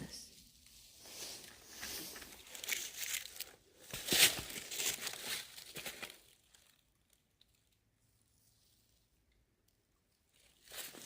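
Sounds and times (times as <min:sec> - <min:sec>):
footsteps on dry leaves: 0:00.8 - 0:06.4.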